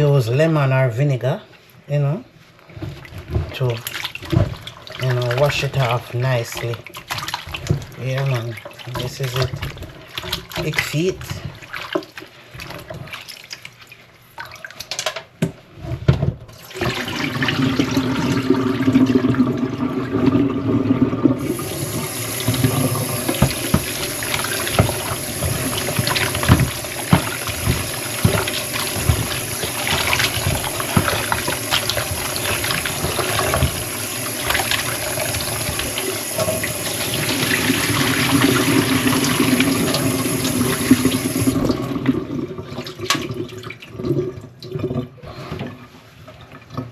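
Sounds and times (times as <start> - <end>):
tap running into a sink: 21.3 - 41.8
knocks and clatter: 21.6 - 36.7.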